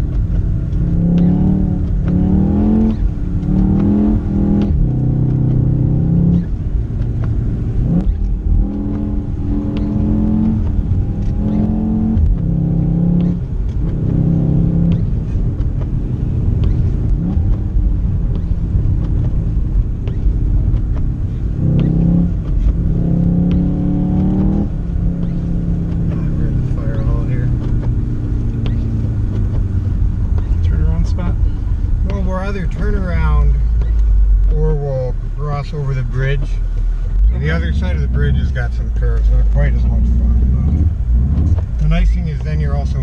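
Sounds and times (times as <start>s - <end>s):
car engine revving: 0.0s - 43.0s
steady low rumble: 0.0s - 43.0s.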